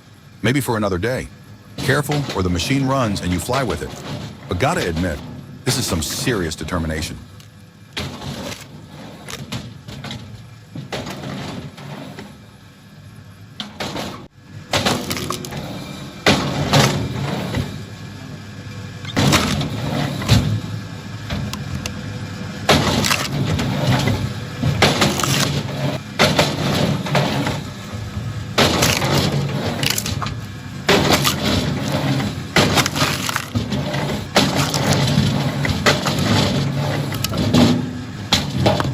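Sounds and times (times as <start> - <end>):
low machine rumble: 0.0 - 38.9
wood cracking and breaking: 14.8 - 15.6, 22.7 - 24.1, 24.7 - 27.7, 28.6 - 38.9.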